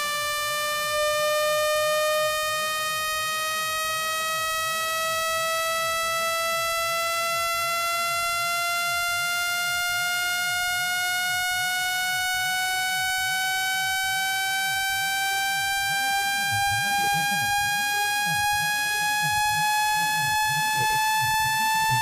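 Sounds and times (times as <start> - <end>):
buzzy rising test tone: 0.0 - 22.0.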